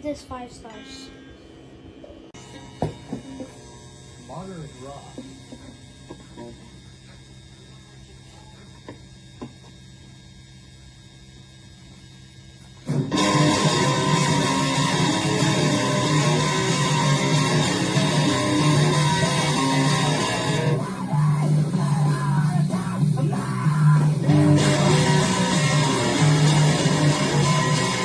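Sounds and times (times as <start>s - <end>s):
steady low hum: 0.0s - 28.0s
electric guitar rock music: 12.8s - 28.0s.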